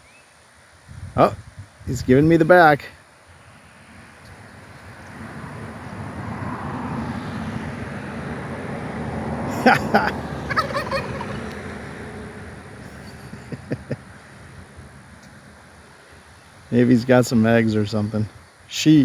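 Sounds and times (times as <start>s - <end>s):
vehicle passing: 3.7s - 15.0s
turkey gobbling: 10.5s - 11.5s.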